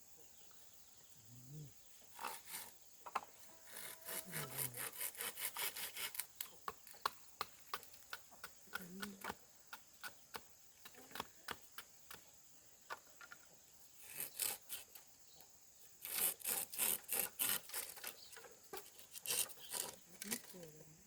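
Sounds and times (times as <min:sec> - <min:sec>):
hand tool rasping bamboo: 0:02.1 - 0:02.8, 0:03.6 - 0:06.5, 0:14.0 - 0:15.0, 0:16.0 - 0:20.5.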